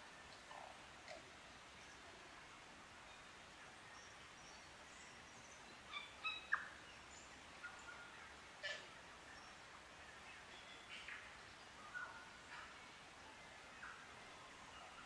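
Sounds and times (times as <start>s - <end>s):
faint hiss: 0.0s - 15.0s
forest birds calling: 0.2s - 15.0s.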